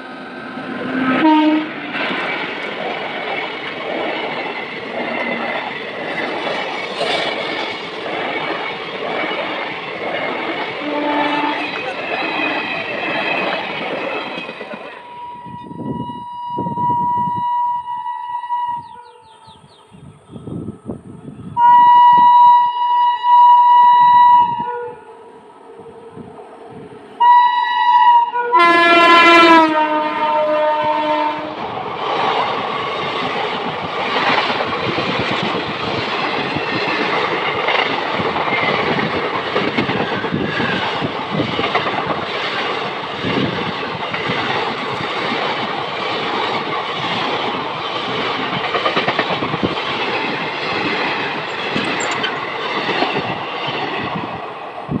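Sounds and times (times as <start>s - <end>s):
train coaches rushing past: 0.0s - 16.0s, 28.8s - 55.0s
locomotive horn blast: 0.9s - 1.8s, 10.8s - 11.7s, 15.0s - 19.4s, 21.6s - 25.3s, 27.2s - 31.6s
wheel clatter over rail joints: 32.2s - 53.9s.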